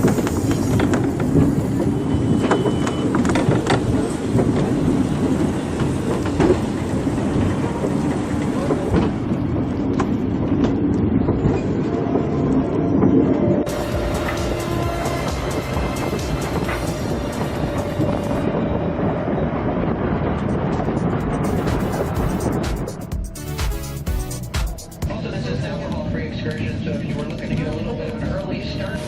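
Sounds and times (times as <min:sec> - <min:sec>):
wheels clicking on rails: 0:00.0 - 0:18.6, 0:24.7 - 0:29.0
train rumbling along track: 0:00.0 - 0:29.0.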